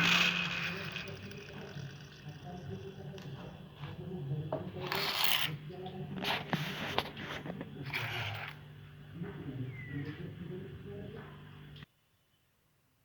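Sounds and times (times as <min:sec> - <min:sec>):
jet engine rotor rasping: 0:00.0 - 0:03.1
steady low hum: 0:00.0 - 0:11.9.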